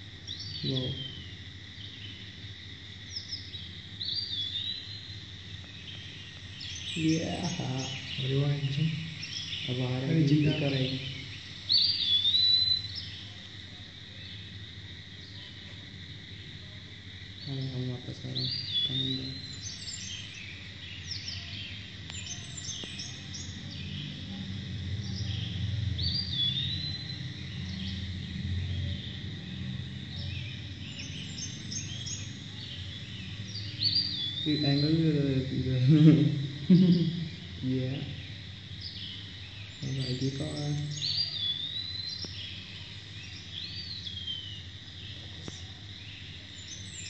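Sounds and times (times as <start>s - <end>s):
steady low hum: 0.0s - 47.0s
high bird chirps: 4.1s - 13.2s, 30.1s - 38.2s, 38.8s - 42.6s
bird whistled call: 11.7s - 13.0s.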